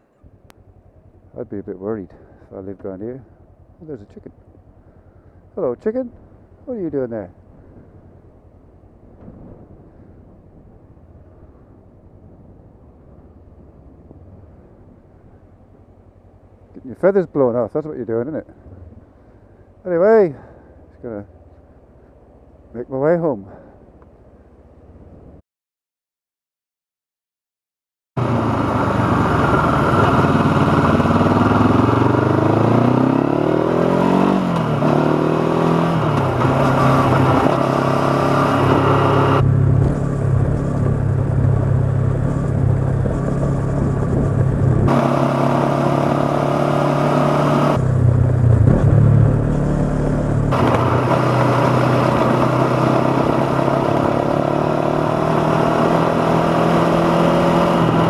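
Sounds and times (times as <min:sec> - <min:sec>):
motorcycle engine shifting gears: 0:28.2 - 0:58.0.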